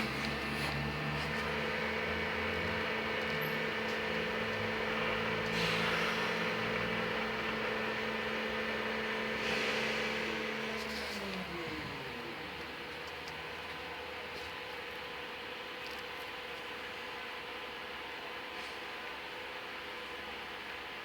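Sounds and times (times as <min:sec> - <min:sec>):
electric bus hum and whine: 0:00.0 - 0:21.0
hiss: 0:05.5 - 0:07.0, 0:09.3 - 0:11.4.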